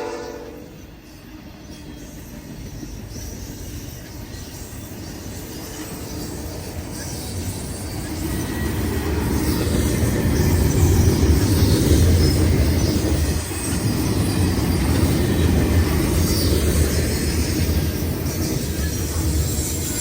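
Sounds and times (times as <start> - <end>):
freight train wheels on rails: 0.0 - 20.0.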